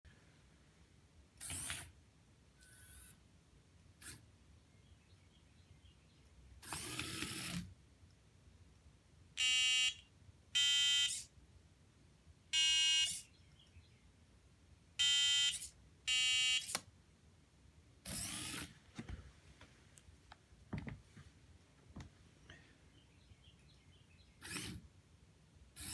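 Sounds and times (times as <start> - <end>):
small servo motor whirring: 1.4 - 1.9, 2.6 - 3.2, 6.6 - 7.7, 11.1 - 11.3, 13.0 - 13.2, 15.5 - 15.7, 16.5 - 16.8, 18.1 - 18.7, 24.4 - 24.8
short electronic beeps: 12.6 - 13.3, 15.0 - 16.7.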